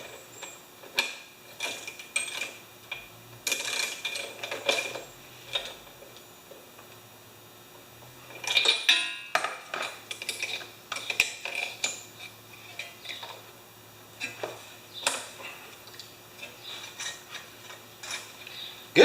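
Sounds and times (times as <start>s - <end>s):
metal tools clinking: 1.5s - 5.8s, 8.3s - 13.4s, 14.2s - 18.6s.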